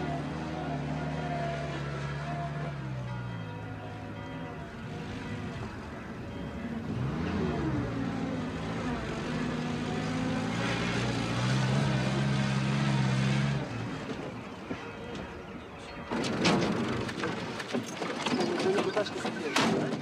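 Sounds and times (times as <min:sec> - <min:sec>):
off-road vehicle engine running: 0:00.0 - 0:14.6.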